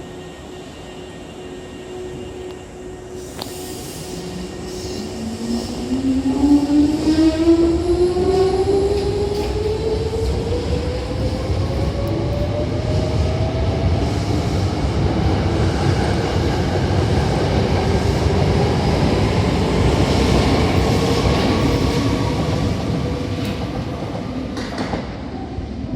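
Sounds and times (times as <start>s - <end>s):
wheels rumbling on rail: 5.1s - 13.7s.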